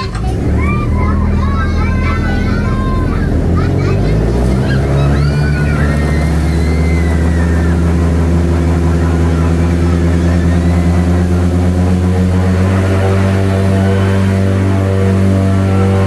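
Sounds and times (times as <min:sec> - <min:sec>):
airboat engine drone: 0:00.0 - 0:16.0.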